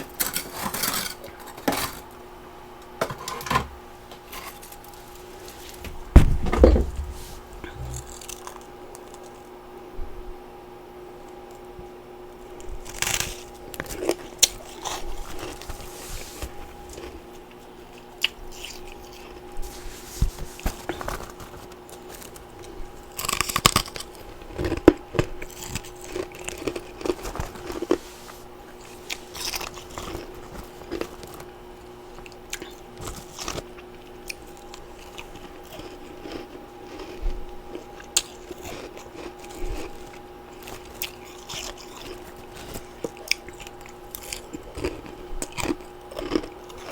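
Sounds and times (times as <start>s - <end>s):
quiet chewing: 12.4s - 46.9s
crunching ice: 12.8s - 16.0s, 20.6s - 28.0s, 28.8s - 31.5s, 32.2s - 46.9s.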